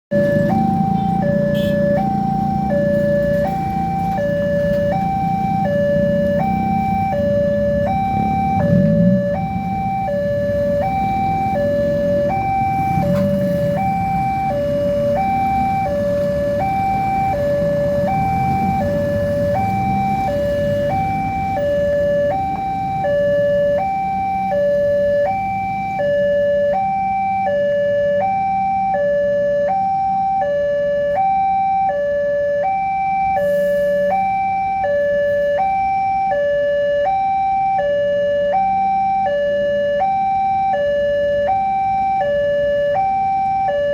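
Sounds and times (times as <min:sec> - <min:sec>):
low engine rumble: 0:00.1 - 0:27.2
level crossing two-tone alarm: 0:00.1 - 0:43.9.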